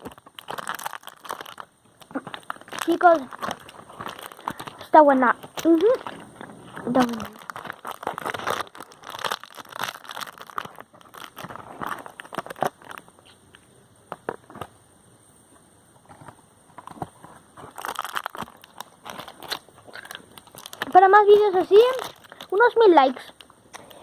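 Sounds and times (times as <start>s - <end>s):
plastic wrapper crinkling: 0.0s - 13.4s, 16.8s - 24.0s.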